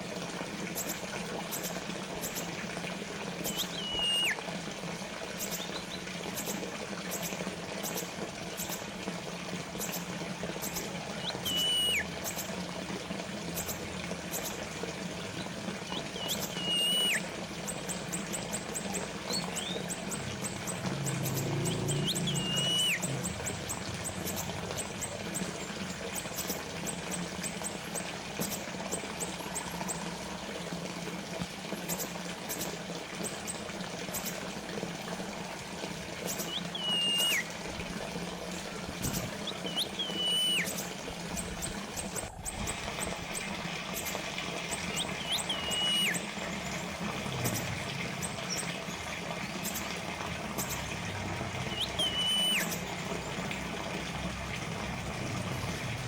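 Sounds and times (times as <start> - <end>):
fountain water trickling: 0.0 - 56.0
bird whistle: 3.4 - 4.4, 11.2 - 12.1, 15.9 - 17.2, 21.9 - 23.1, 36.3 - 37.5, 39.4 - 40.8, 44.9 - 46.2, 51.6 - 52.8.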